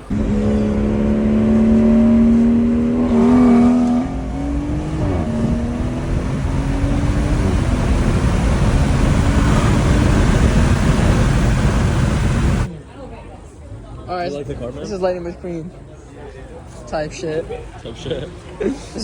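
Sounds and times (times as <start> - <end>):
car engine revving: 0.0 - 12.7.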